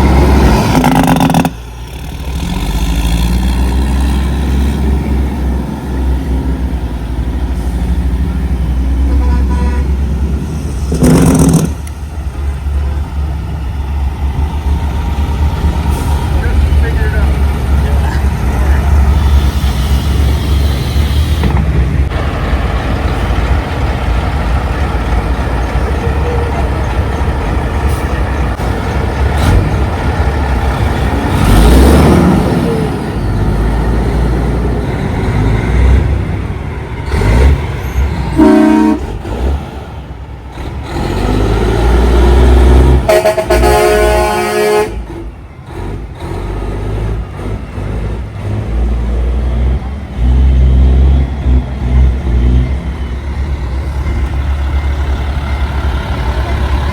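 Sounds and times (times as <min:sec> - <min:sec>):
truck engines running: 0:00.0 - 0:56.9
truck horn blast: 0:09.0 - 0:10.2, 0:19.1 - 0:21.5, 0:38.3 - 0:39.2, 0:42.9 - 0:45.2.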